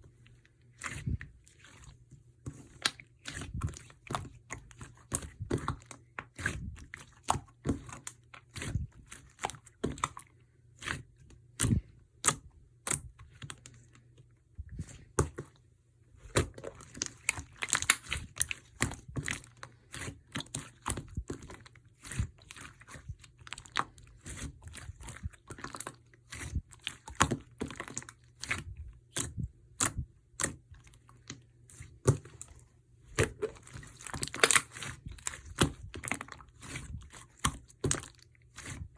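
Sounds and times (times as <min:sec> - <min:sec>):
slime clicking and crackling: 0:16.3 - 0:32.5, 0:33.2 - 0:38.8.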